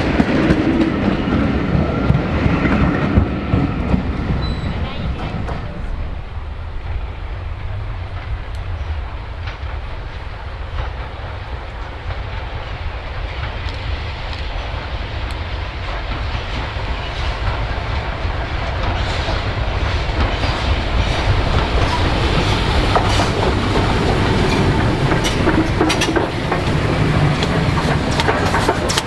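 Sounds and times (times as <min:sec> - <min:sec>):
steam train passing: 0:00.0 - 0:29.0
wheels clattering over rail joints: 0:15.8 - 0:29.0.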